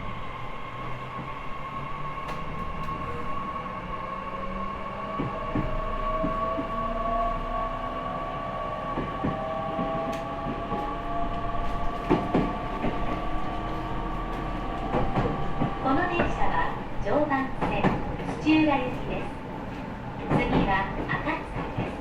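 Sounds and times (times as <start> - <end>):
wheels clacking over rail joints: 9.0 - 22.0.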